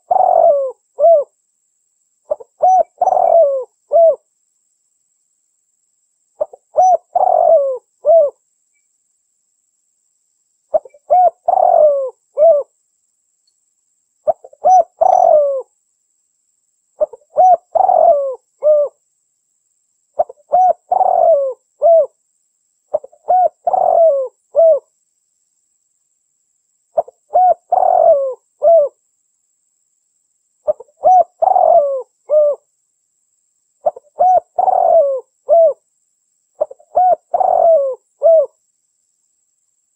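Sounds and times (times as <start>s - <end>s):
dove cooing: 0.0s - 1.3s, 2.3s - 4.2s, 6.4s - 8.4s, 10.7s - 12.7s, 14.2s - 15.7s, 17.0s - 19.0s, 20.2s - 22.2s, 22.9s - 24.9s, 27.0s - 29.0s, 30.6s - 32.7s, 33.8s - 35.8s, 36.6s - 38.6s.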